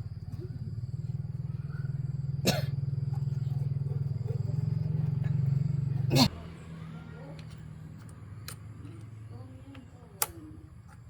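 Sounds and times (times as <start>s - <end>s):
engine throbbing steadily: 0.0s - 7.1s.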